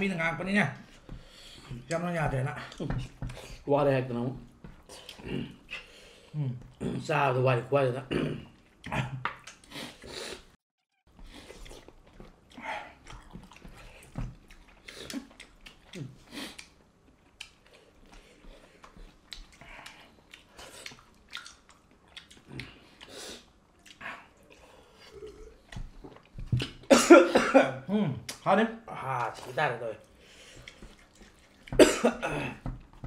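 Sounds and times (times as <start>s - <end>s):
people chewing and lip-smacking: 8.5s - 10.1s, 11.1s - 26.9s, 29.2s - 31.8s.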